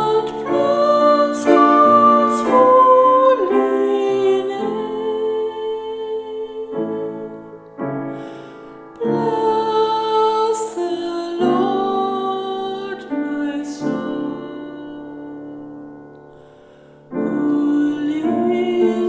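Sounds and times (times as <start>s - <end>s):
slow chant singing: 0.0s - 7.7s
keyboard accompaniment: 0.0s - 19.0s.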